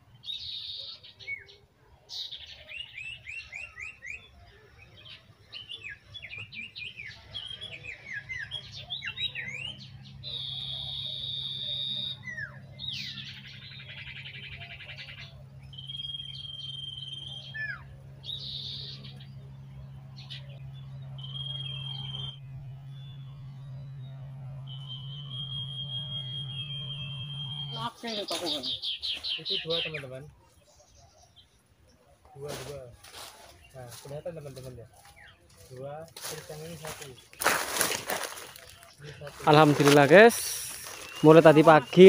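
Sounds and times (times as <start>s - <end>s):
songbirds chirping and trilling: 0.0s - 42.0s
steady low hum: 3.4s - 42.0s.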